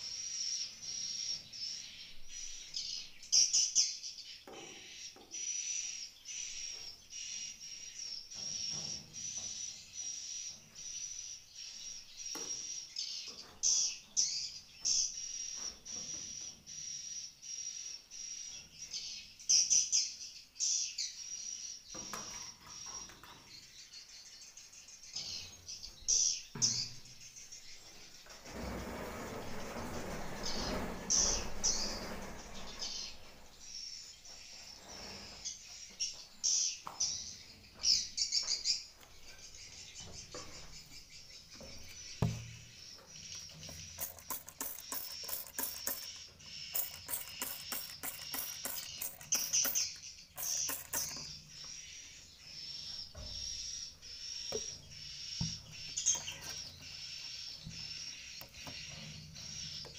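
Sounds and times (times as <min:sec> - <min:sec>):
dull thump: 0:42.2 - 0:42.7
swiftlets chirping: 0:43.4 - 0:51.5.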